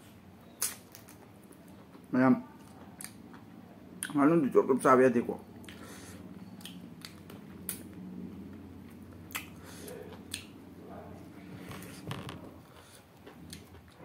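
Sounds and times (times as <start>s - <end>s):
low steady hum: 0.0s - 14.0s
wet chewing clicks and smacks: 0.4s - 4.2s, 5.5s - 8.0s, 8.8s - 10.6s.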